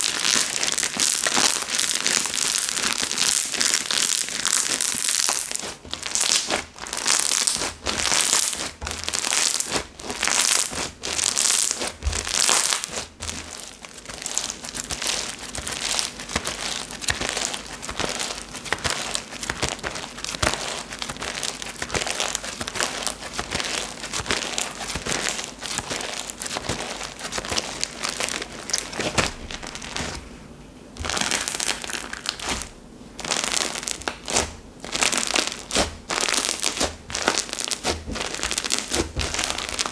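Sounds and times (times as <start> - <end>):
hands squishing slime: 0.0 - 30.3, 31.0 - 39.9.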